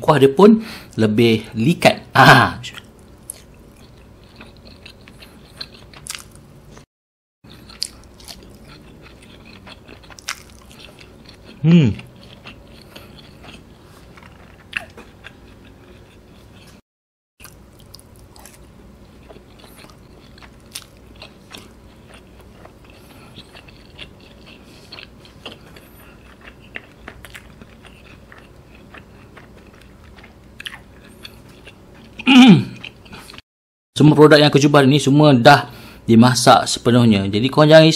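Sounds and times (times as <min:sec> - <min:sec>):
mouth chewing with clicks: 0:02.7 - 0:06.4, 0:07.5 - 0:13.6, 0:19.2 - 0:33.4.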